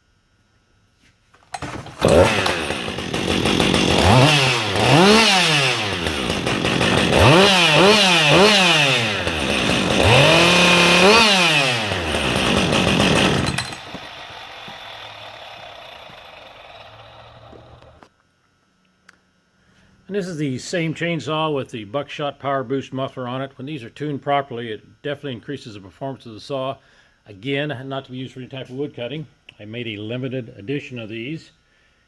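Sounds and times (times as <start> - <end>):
chainsaw revving: 1.5 - 18.1.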